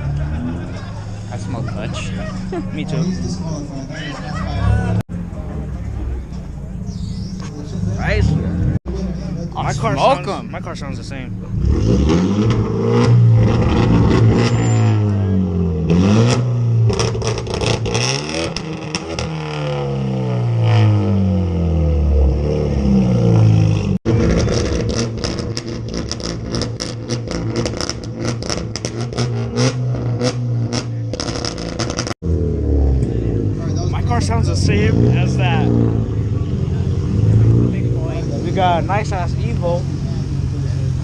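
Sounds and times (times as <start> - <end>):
car engine revving: 0.0 - 41.0
fast engine crackle: 24.1 - 32.2.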